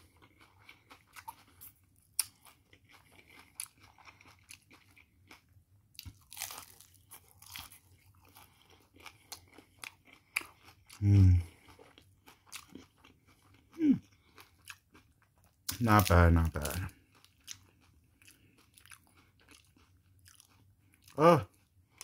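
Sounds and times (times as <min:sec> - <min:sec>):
crunching and chewing food: 0:00.0 - 0:22.0
low vocal hum: 0:11.0 - 0:11.5.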